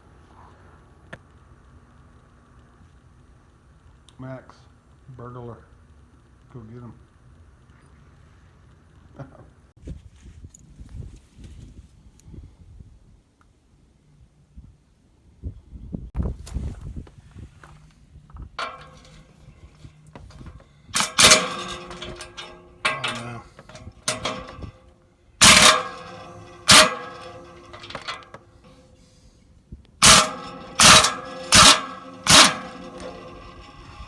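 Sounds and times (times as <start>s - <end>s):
sharp metal clanks: 18.6s - 29.1s, 30.0s - 34.0s.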